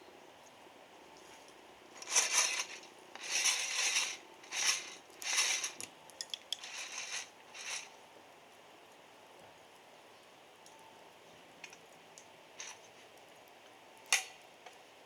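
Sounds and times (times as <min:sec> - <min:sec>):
coffee beans rattling in roaster: 0:02.0 - 0:07.9.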